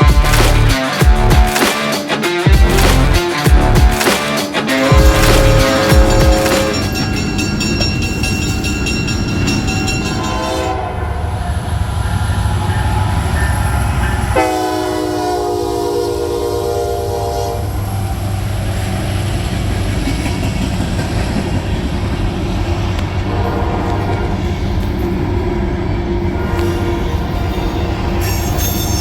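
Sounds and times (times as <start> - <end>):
diesel locomotives rumbling: 2.5 - 29.0
train air horn blast: 4.6 - 6.9, 10.2 - 11.5, 14.3 - 18.2, 23.2 - 24.6, 26.3 - 27.4.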